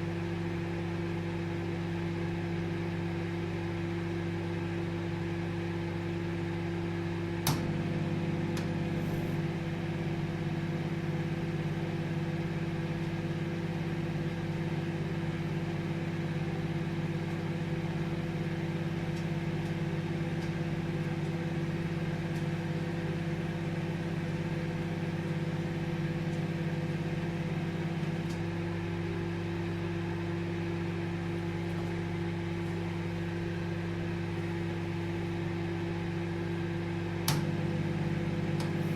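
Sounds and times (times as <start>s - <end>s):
microwave buzz: 0.0s - 38.9s
microwave oven humming: 0.0s - 38.9s
microwave click: 7.4s - 10.2s, 17.2s - 23.1s, 26.0s - 28.6s, 37.1s - 38.9s.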